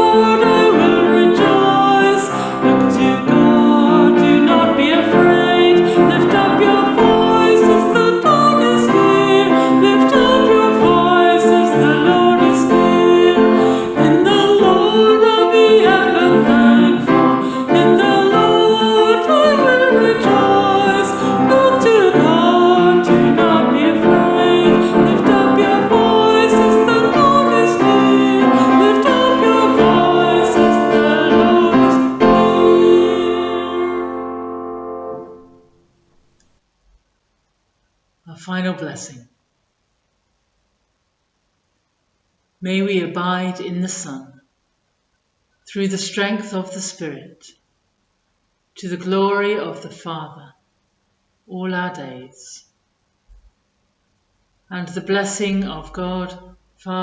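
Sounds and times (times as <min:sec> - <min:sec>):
person singing a chant: 0:00.0 - 0:35.6
piano accompaniment: 0:00.0 - 0:36.3.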